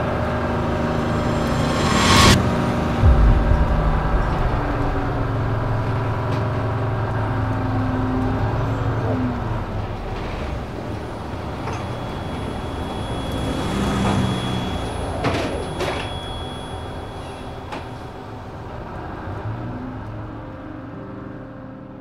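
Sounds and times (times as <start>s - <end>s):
bus engine and road rumble: 5.6s - 21.2s.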